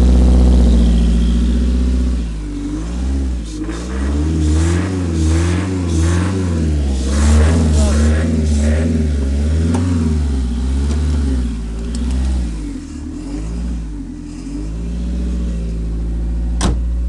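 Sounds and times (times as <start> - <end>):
car engine surging unevenly: 0.0 - 17.0
engine pop: 9.6 - 10.2, 16.5 - 17.0.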